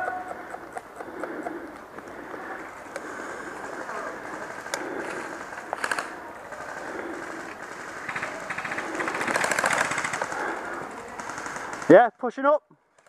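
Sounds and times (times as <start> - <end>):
airsoft guns firing bursts: 2.6 - 12.1.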